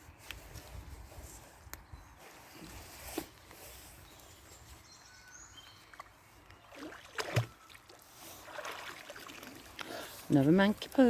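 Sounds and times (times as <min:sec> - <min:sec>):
water splashing and sloshing: 0:05.8 - 0:11.0.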